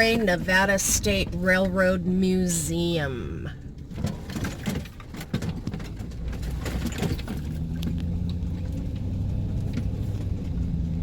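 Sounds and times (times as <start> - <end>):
vehicle engine running: 3.0 - 11.0
clicks and rattles: 3.8 - 8.8.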